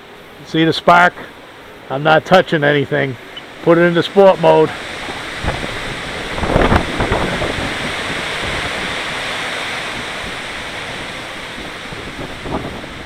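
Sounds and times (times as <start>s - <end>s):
wind buffeting microphone: 4.7s - 13.0s.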